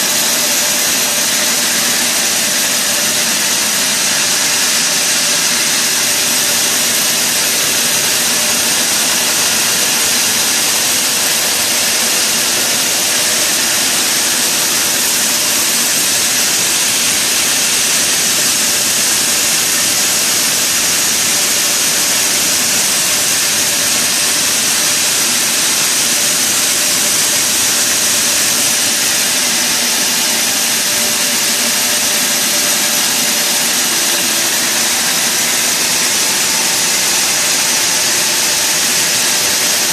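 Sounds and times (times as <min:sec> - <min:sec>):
sawmill machinery whine: 0:00.0 - 0:39.9.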